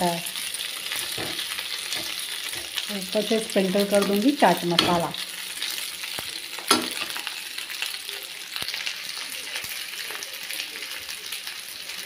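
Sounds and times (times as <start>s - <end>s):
food sizzling in hot oil: 0.0s - 12.0s
metal spatula clinking pan: 3.8s - 5.2s, 6.7s - 7.2s.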